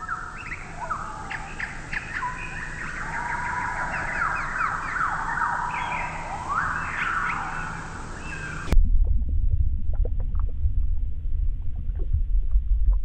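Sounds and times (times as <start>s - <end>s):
whistled bird notes: 0.0s - 8.7s
birds chirping: 0.0s - 8.8s.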